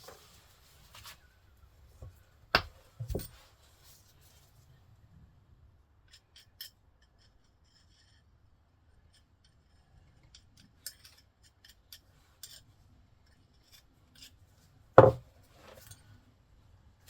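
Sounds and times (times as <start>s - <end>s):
loud knock: 15.0s - 15.2s.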